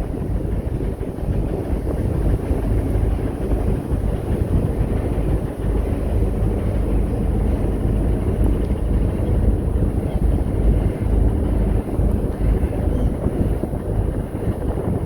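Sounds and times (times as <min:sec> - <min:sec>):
engine rumble: 0:00.0 - 0:15.0.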